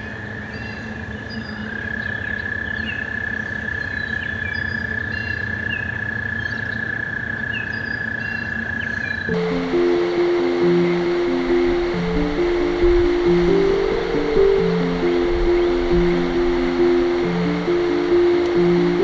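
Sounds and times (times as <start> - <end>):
birds chirping: 9.3 - 19.0
toads trilling: 9.3 - 19.0.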